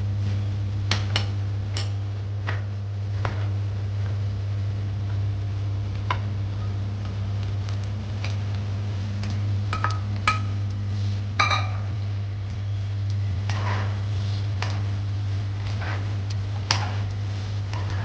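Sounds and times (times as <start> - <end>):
steady low hum: 0.0 - 18.0
utensils clinking on cookware: 11.4 - 12.0.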